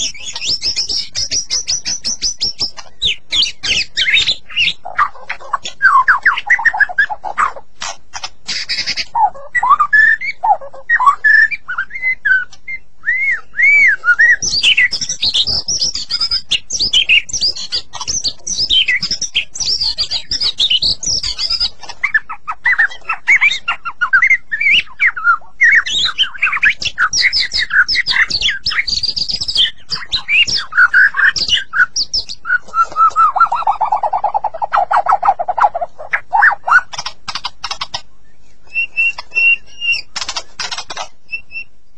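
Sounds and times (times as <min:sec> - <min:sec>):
bird harsh chattering: 0:00.0 - 0:12.5, 0:13.6 - 0:38.0, 0:38.7 - 0:41.7
songbird whistled song: 0:00.0 - 0:41.9.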